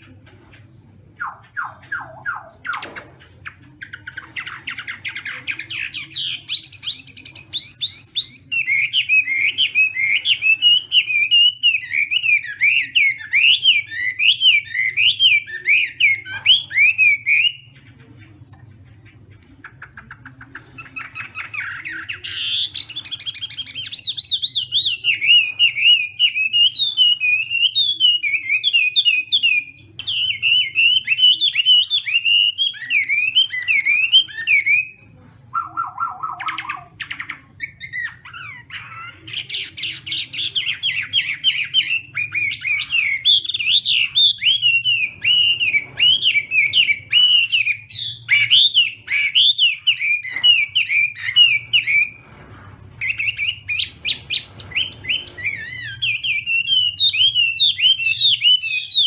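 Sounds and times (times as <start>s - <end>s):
low bird trill: 20.1s - 52.4s, 53.0s - 59.0s
bird singing whistled notes: 40.0s - 52.2s, 53.0s - 59.0s.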